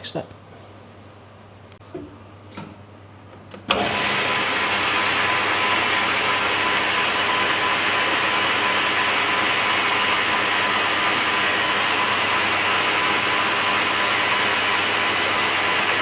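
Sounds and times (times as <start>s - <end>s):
lathe whirring: 3.7s - 16.0s.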